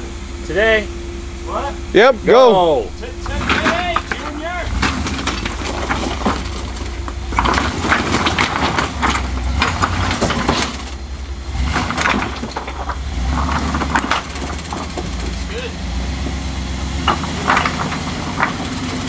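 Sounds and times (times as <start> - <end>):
off-road vehicle engine rumbling: 0.0 - 19.0
clanks and scrapes on rock: 3.2 - 15.5, 17.0 - 19.0.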